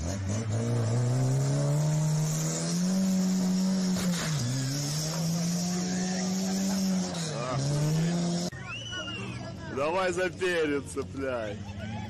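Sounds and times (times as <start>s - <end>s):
car engine revving hard: 0.0s - 8.5s.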